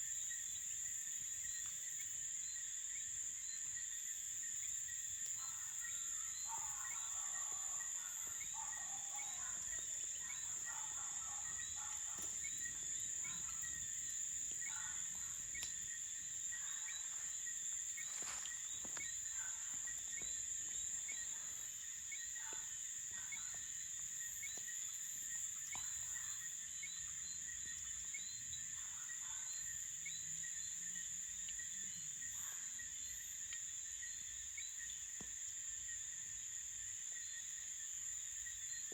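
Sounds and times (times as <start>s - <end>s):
crickets trilling: 0.0s - 38.9s
faint sharp clicks: 15.6s - 15.8s.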